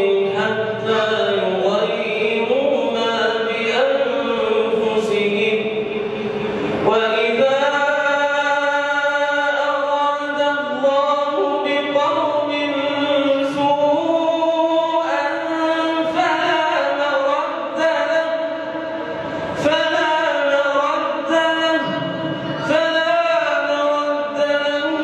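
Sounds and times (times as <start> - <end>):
man chanting melodically: 0.0 - 25.0.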